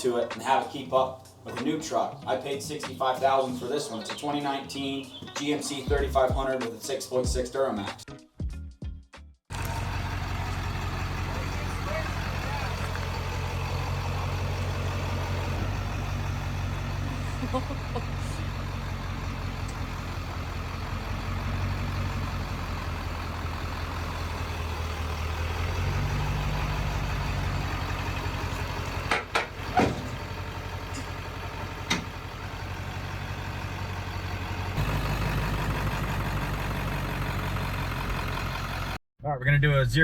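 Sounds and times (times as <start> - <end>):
diesel truck engine idling: 9.5 - 39.0
sharp clunks: 29.0 - 30.3, 31.8 - 32.2.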